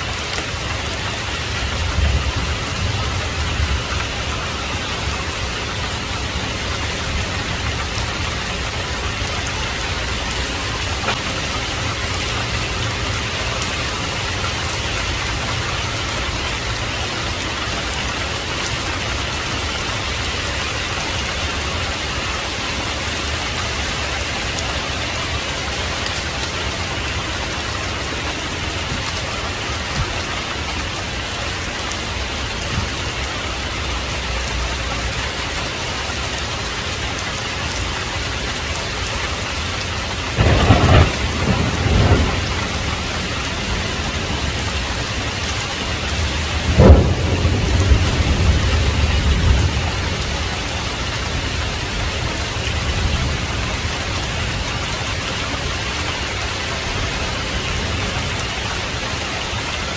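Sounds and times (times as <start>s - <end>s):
heavy rain: 0.0s - 59.9s
thunder clap with deep rumble: 1.2s - 15.7s, 40.3s - 53.9s.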